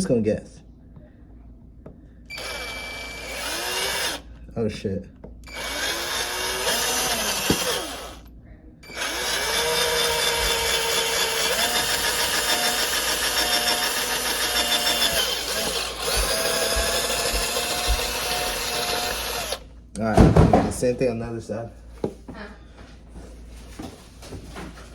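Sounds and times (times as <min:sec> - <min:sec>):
power drill running: 0:02.3 - 0:04.3, 0:05.4 - 0:19.6.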